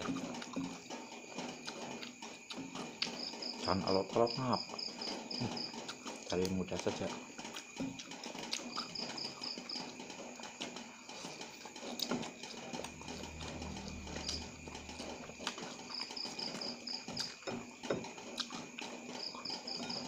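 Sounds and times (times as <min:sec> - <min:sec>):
cricket chirping: 0:00.0 - 0:20.0
chewing with lip smacks: 0:18.3 - 0:18.7.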